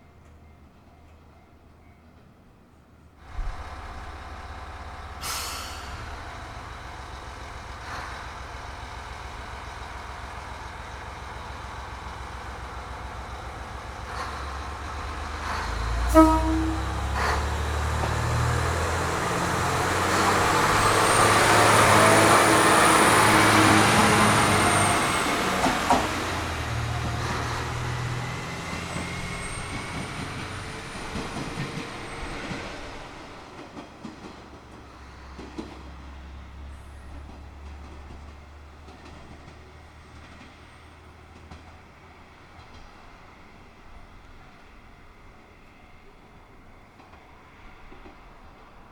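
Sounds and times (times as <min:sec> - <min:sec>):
diesel railcar engine rumbling: 0:00.0 - 0:48.9
wheel and rail noise: 0:03.2 - 0:48.9
faint high wheel squeal: 0:15.5 - 0:18.1
train horn blast: 0:15.9 - 0:18.2.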